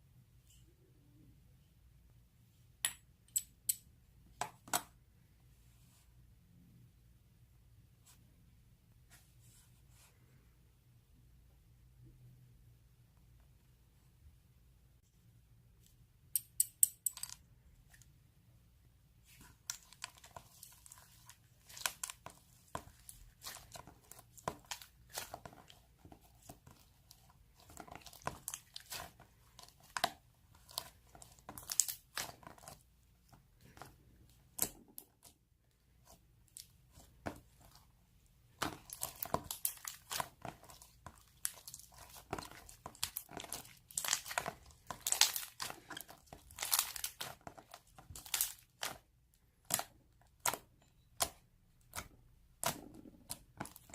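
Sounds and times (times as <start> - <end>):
crinkling and tearing: 38.6 - 49.0.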